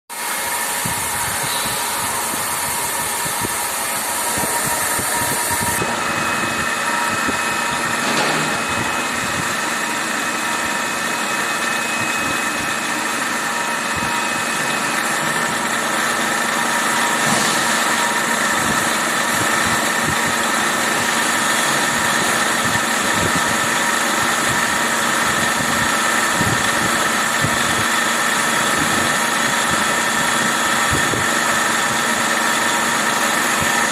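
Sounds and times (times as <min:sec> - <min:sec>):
lathe machine running: 0:00.1 - 0:33.9
steady whining tones: 0:00.1 - 0:33.9.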